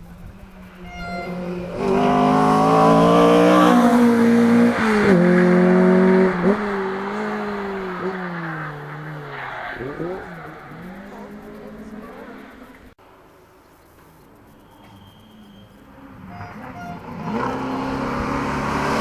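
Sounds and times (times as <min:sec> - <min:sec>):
rally car engine passing: 0:00.0 - 0:13.0, 0:15.5 - 0:19.0.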